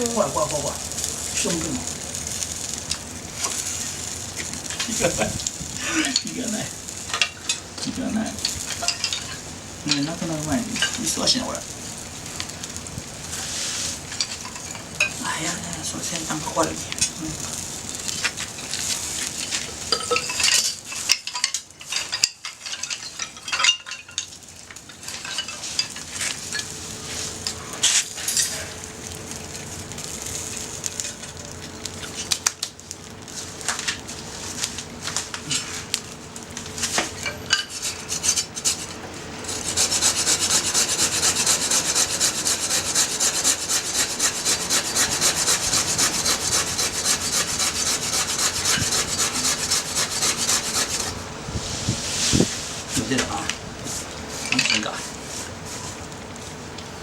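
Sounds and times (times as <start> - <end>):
faint fire crackling: 0.0 - 57.0
clinks and knocks of cooking: 7.1 - 10.2, 19.5 - 26.7
saw rasping through wood: 37.6 - 51.2.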